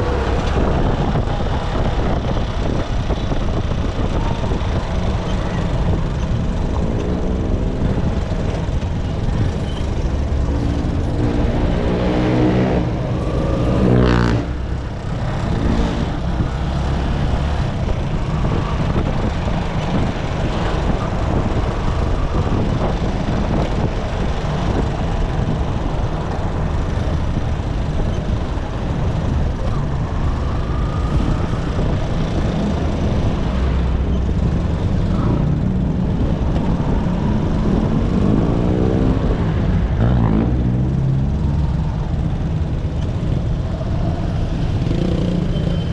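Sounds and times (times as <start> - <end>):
road noise: 0.0 - 45.9.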